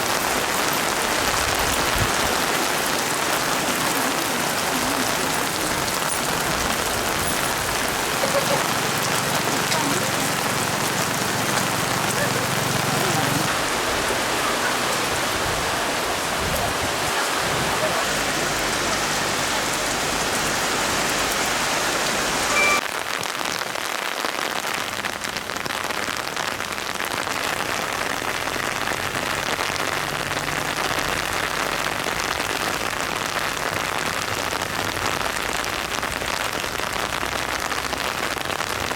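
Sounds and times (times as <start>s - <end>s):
heavy rain falling: 0.0s - 38.9s
brief short tone: 22.5s - 22.8s.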